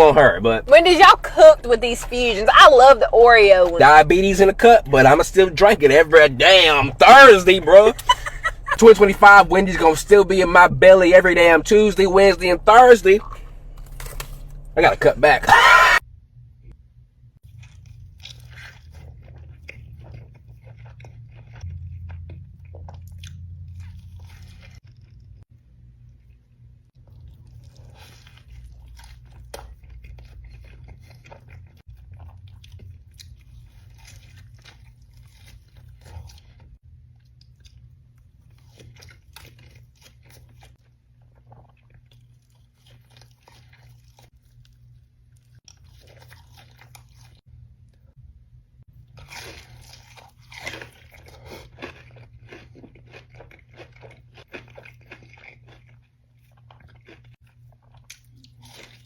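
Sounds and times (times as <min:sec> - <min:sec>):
low steady hum: 0:00.0 - 0:18.4
crunching and chewing food: 0:03.7 - 0:16.0, 0:17.4 - 0:59.0.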